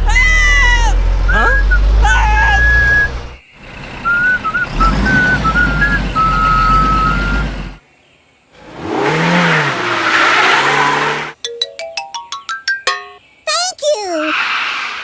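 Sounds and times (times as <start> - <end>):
engine revving: 0.0 - 7.8, 8.6 - 11.4
vehicle engine whining: 0.0 - 7.8, 8.6 - 11.4.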